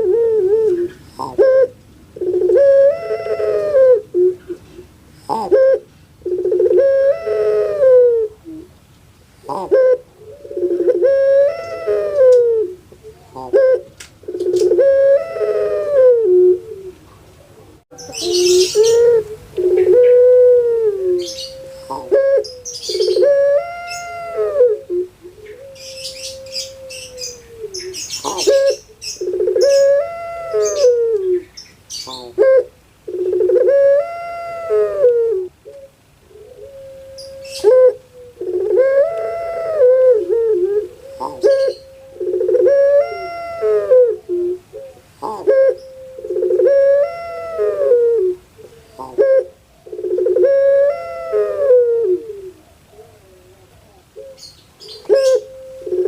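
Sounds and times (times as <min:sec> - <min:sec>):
dove cooing: 0:00.0 - 0:08.8, 0:09.4 - 0:56.0
small birds chirping: 0:16.9 - 0:20.2, 0:21.2 - 0:24.3, 0:25.0 - 0:32.5, 0:40.8 - 0:43.3, 0:52.6 - 0:56.0.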